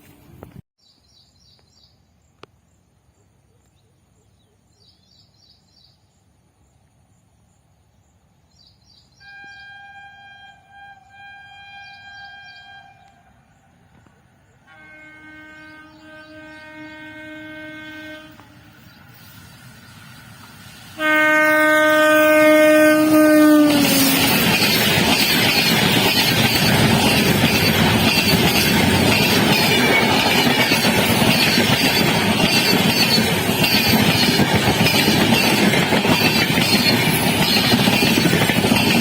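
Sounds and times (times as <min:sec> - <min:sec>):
locomotive horn blast: 0:09.2 - 0:13.5, 0:14.6 - 0:18.8, 0:21.0 - 0:24.7
train passing at speed: 0:10.2 - 0:39.0
wheels clattering over rail joints: 0:23.8 - 0:39.0.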